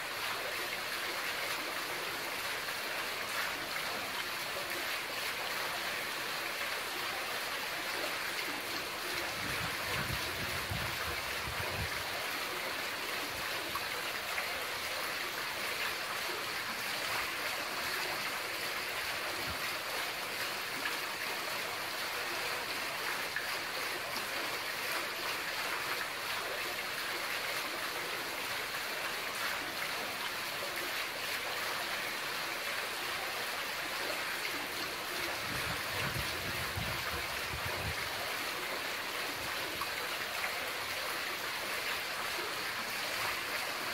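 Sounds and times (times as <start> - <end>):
fountain water splashing into basin: 0.0 - 43.9.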